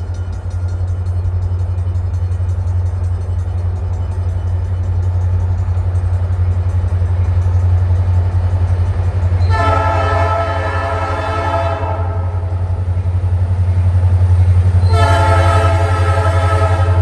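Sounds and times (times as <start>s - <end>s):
train rumbling: 0.0s - 17.0s
locomotive horn blast: 9.4s - 12.5s, 14.8s - 17.0s.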